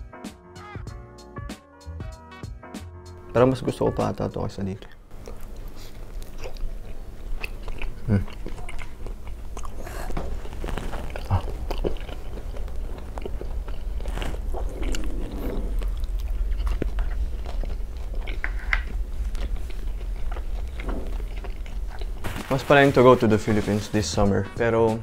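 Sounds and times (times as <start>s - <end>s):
biting and chewing: 4.9s - 22.8s
crisp crunches: 7.3s - 23.8s.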